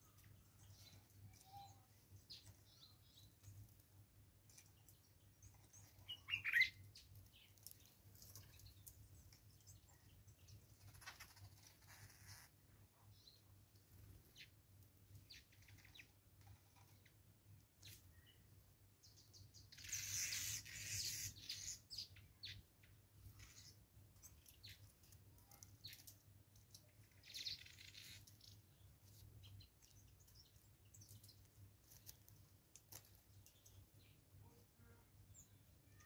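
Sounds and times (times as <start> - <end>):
faint bird chirps: 0.0 - 3.6, 4.5 - 14.6, 15.2 - 17.2, 17.8 - 32.3, 33.3 - 36.0.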